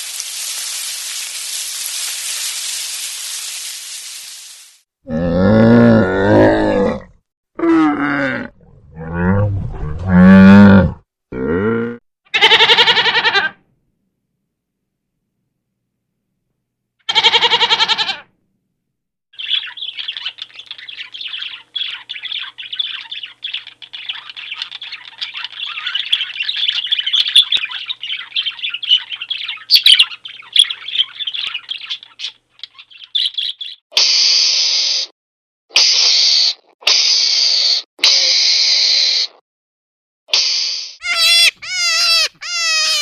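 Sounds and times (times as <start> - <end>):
bird chirping and chattering: 19.4 - 33.8, 41.0 - 43.0
short pitched animal call: 41.0 - 43.0.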